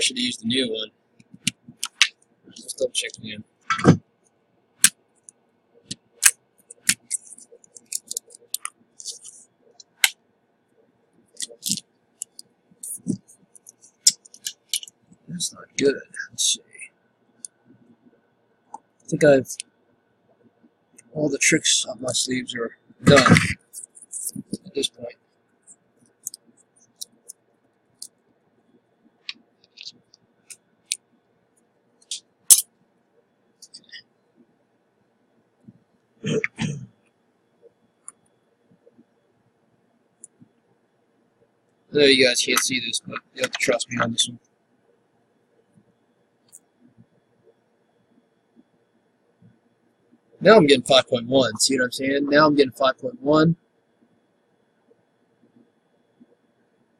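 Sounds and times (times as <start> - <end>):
small tools clicking: 6.2 - 9.4.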